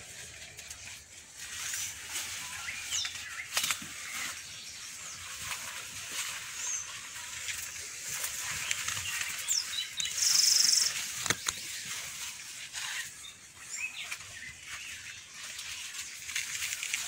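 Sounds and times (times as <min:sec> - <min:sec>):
small birds chirping: 0:02.4 - 0:16.7
sharp click: 0:11.2 - 0:11.6.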